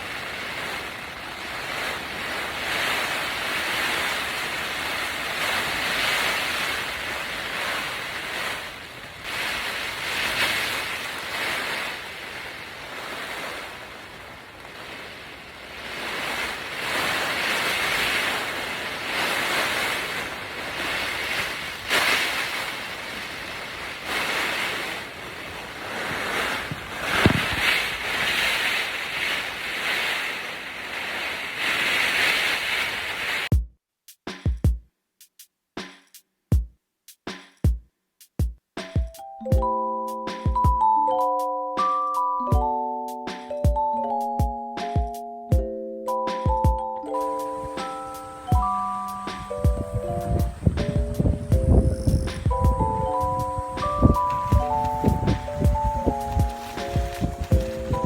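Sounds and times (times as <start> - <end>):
strong gusty wind: 0.0 - 33.5, 47.2 - 58.0.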